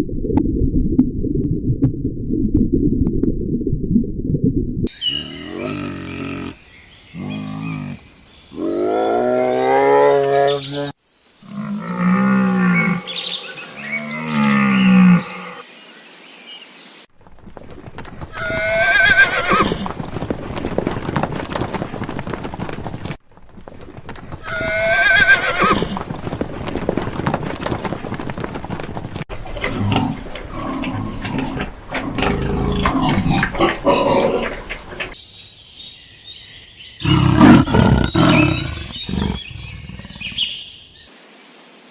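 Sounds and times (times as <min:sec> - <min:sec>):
horse whinnying: 0:18.3 - 0:20.0, 0:24.4 - 0:26.1, 0:37.0 - 0:40.5.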